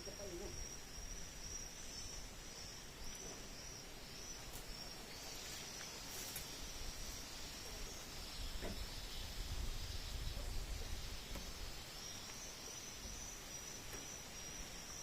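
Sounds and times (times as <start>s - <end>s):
high-pitched insect trill: 0.0s - 15.0s
wind rumbling on microphone: 6.6s - 12.0s.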